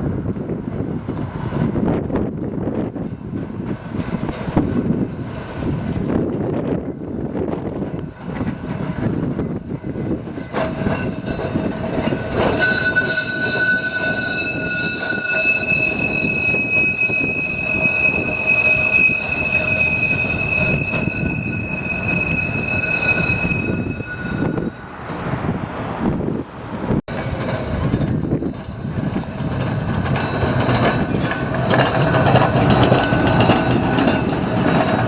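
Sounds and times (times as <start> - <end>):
tram rumbling: 0.0 - 35.0
tram wheels squealing: 8.9 - 25.7, 27.1 - 35.0.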